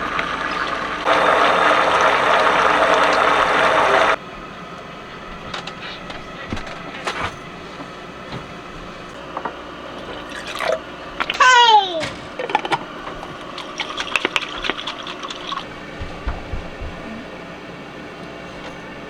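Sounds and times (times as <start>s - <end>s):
running water: 0.0s - 4.2s, 9.8s - 17.3s.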